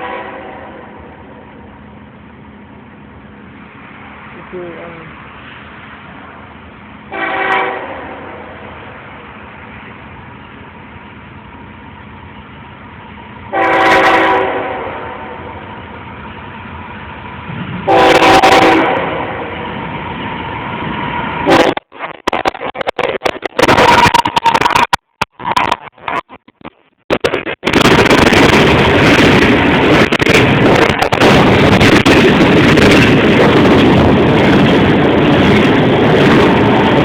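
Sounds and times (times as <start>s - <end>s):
locomotive air horn blasts: 0.0s - 0.9s, 7.1s - 8.6s, 13.5s - 15.6s, 17.9s - 19.5s, 21.5s - 21.8s
train rumbling: 0.0s - 37.0s.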